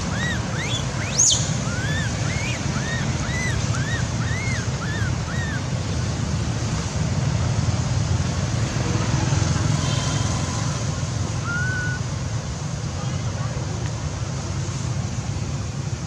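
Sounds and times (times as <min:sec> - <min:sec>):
short high calls: 0:00.0 - 0:05.7, 0:11.4 - 0:12.1
low rumbling noise: 0:00.0 - 0:16.0
sharp rising whistle: 0:11.4 - 0:12.0.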